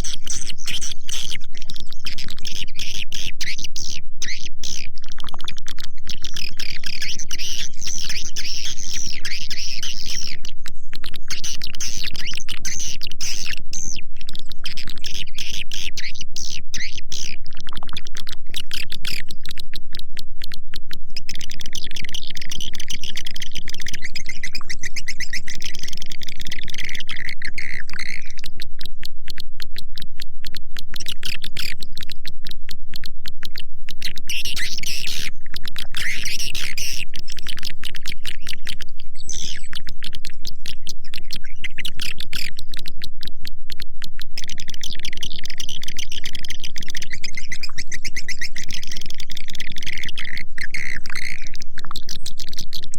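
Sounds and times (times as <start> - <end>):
high twittering chirps: 21.1 - 28.4, 33.4 - 42.7, 44.5 - 52.8.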